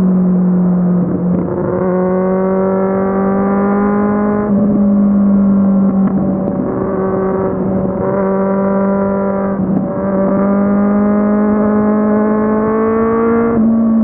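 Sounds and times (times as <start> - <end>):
motorcycle engine revving: 1.3 - 14.0.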